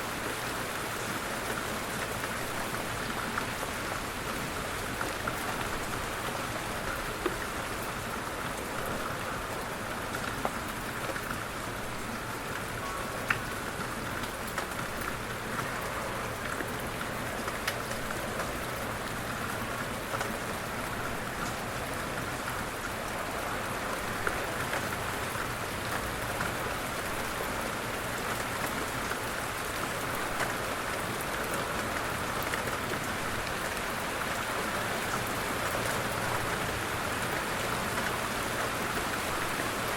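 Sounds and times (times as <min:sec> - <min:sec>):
light rain hissing: 0:00.6 - 0:39.9
raindrop taps: 0:14.1 - 0:18.9.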